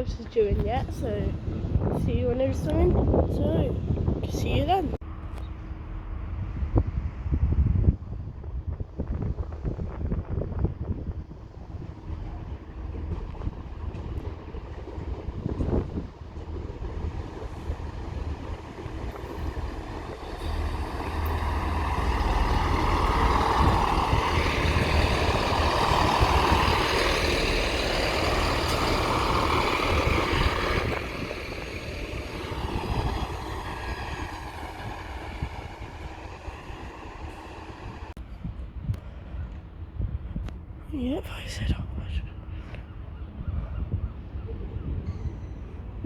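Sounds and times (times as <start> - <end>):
train arriving at platform: 4.9 - 41.2.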